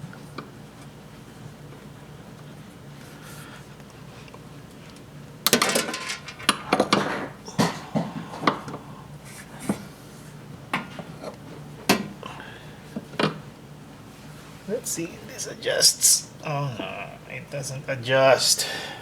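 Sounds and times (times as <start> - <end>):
metal tools clattering: 5.5 - 7.8.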